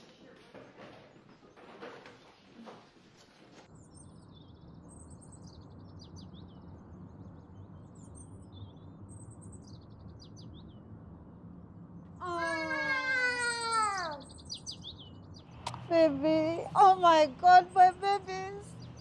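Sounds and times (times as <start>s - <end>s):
low outdoor hum: 0.0s - 19.0s
small birds chirping and trilling: 3.6s - 19.0s
woman's loud drawn-out cry: 12.2s - 14.2s.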